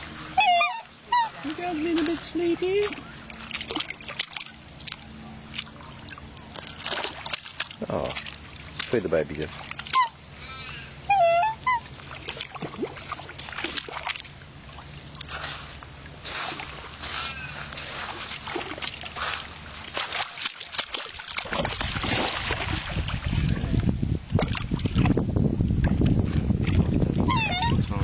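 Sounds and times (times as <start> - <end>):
water splashing and sloshing: 0.0 - 28.0
swan honking: 0.3 - 2.1, 9.9 - 12.3, 27.3 - 27.9.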